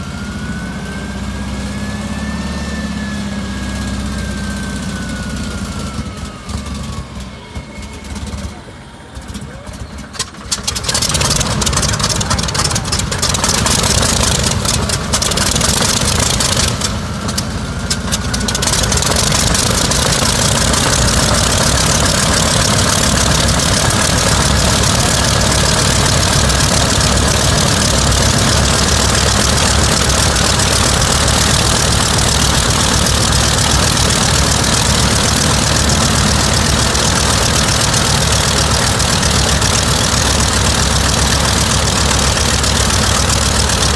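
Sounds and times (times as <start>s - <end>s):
radial aircraft engine starting: 0.0s - 43.9s.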